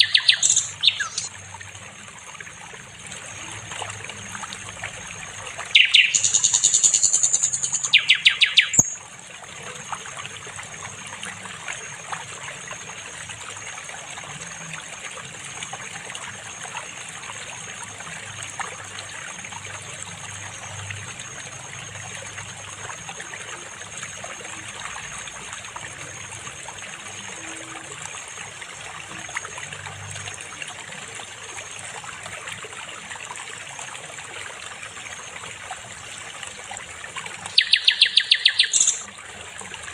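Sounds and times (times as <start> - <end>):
flycatcher singing trilled notes: 0.0 - 1.3, 5.8 - 9.0, 37.6 - 39.1
stream trickling: 0.0 - 39.9.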